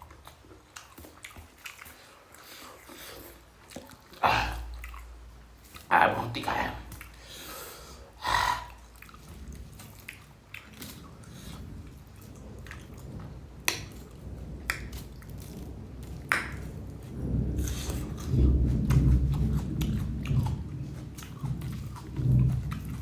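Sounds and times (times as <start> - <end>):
person chewing food: 0.0 - 23.0
short breath: 7.2 - 8.9.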